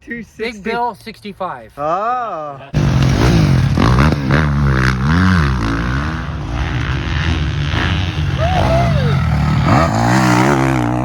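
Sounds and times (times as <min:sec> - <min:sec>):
dirt bike engines revving: 0:02.7 - 0:11.0.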